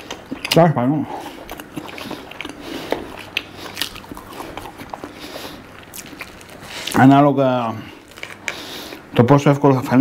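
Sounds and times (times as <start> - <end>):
chewing crunchy fried food: 0.0 - 7.2.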